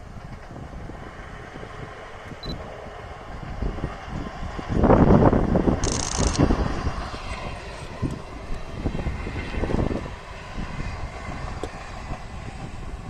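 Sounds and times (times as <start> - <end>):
passing train rumble: 0.0 - 13.0.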